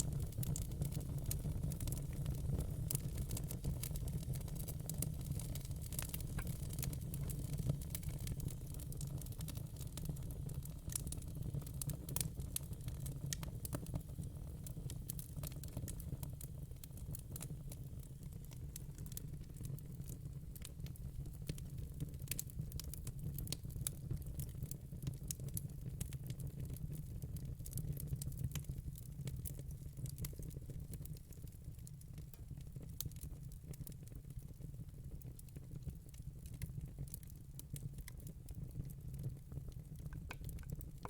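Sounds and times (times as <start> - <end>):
fire crackling: 0.0 - 23.7, 35.2 - 41.0.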